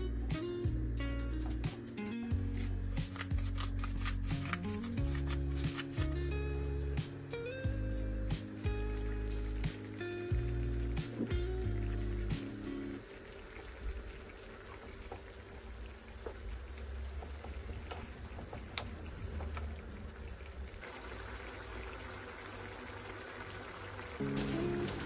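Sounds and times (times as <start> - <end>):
bright hiss: 5.6 - 13.0
food simmering and bubbling: 12.9 - 25.0.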